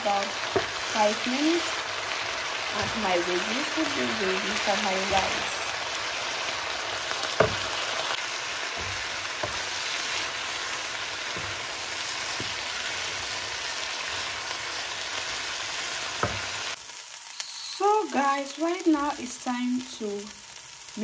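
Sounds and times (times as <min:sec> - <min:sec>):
food sizzling in a frying pan: 0:00.0 - 0:21.0
wooden spoon knocking a pan: 0:07.2 - 0:07.8, 0:08.7 - 0:10.3, 0:11.2 - 0:13.3, 0:16.2 - 0:16.5.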